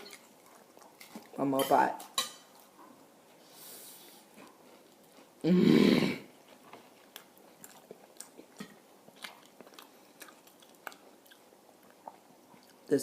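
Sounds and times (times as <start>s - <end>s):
person chewing food: 0.0s - 1.4s, 2.4s - 5.5s, 6.2s - 13.0s.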